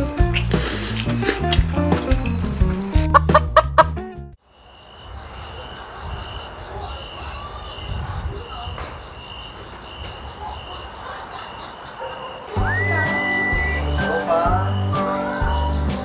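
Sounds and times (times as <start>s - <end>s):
continuous high cricket trill: 4.4s - 16.0s
lower pulsing cricket chirping: 4.4s - 16.0s.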